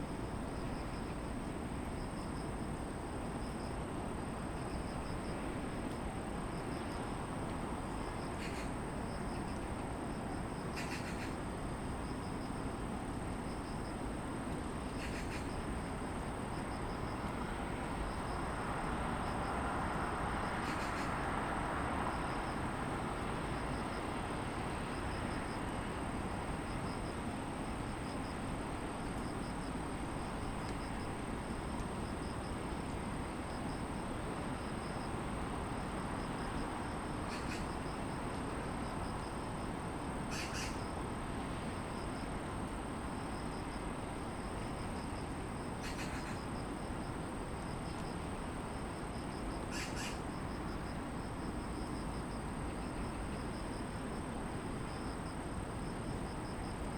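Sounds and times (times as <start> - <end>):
distant city traffic hum: 0.0 - 56.9
insects chirring in grass: 0.0 - 56.9
short bird calls: 37.3 - 37.7, 40.3 - 40.8, 49.7 - 50.2.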